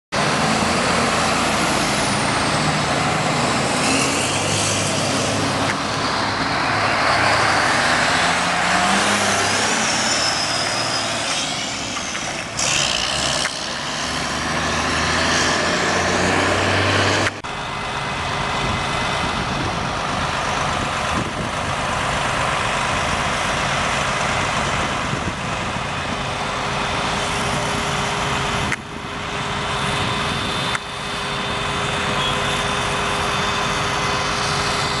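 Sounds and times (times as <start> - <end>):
fire engine driving: 0.1 - 35.0
road noise: 0.1 - 35.0.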